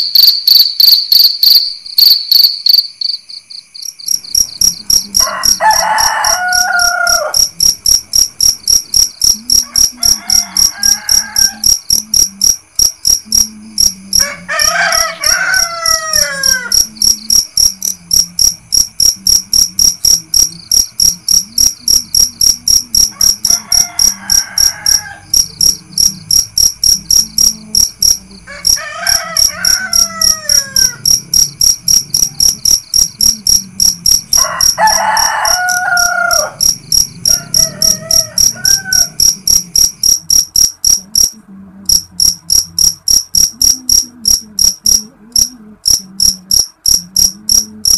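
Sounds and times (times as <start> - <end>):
crickets chirping: 0.0 - 47.9
roosters crowing: 4.6 - 7.9, 9.3 - 12.0, 14.1 - 17.0, 21.8 - 40.1.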